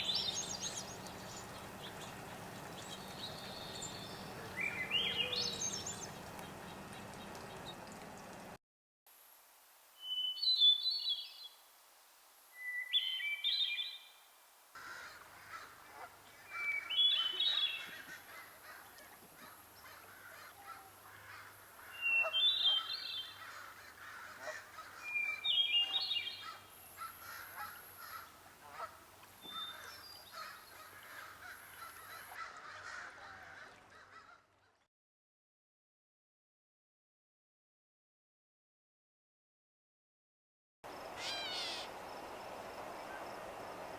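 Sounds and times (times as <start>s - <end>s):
songbird singing: 0.0s - 8.6s, 10.0s - 11.6s, 12.5s - 14.3s, 15.2s - 32.4s, 40.9s - 43.9s
background hiss: 0.0s - 32.4s, 40.9s - 43.9s.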